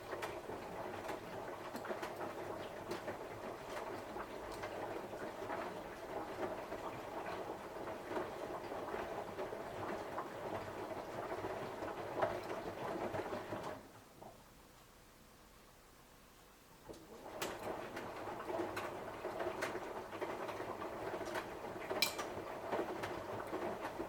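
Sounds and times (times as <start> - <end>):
laundry tumbling in washing machine: 0.0 - 14.4, 16.8 - 24.0.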